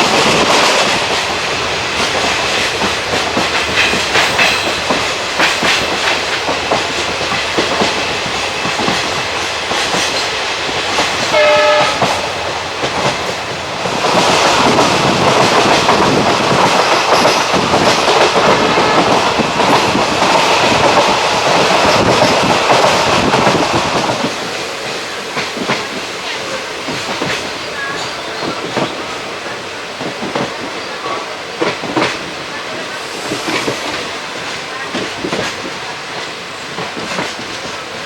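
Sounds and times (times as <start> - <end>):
train wheels clattering: 0.0 - 29.3, 30.0 - 38.0
train horn: 11.3 - 12.6, 18.6 - 19.3.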